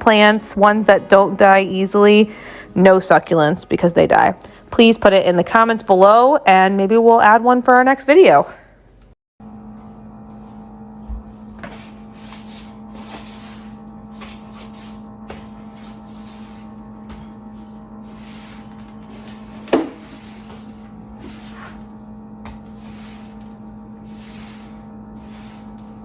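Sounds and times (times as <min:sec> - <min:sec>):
steady low hum: 0:08.6 - 0:26.0
short hissing strokes: 0:22.7 - 0:25.9.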